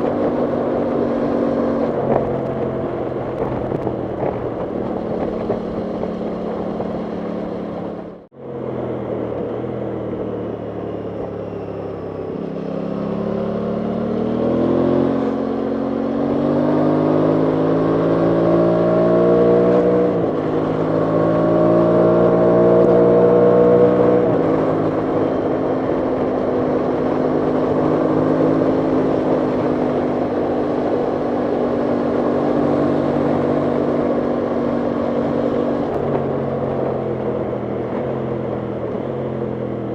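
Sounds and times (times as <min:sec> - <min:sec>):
wind on microphone: 0:00.0 - 0:08.1
motorcycle engine accelerating: 0:00.0 - 0:39.9.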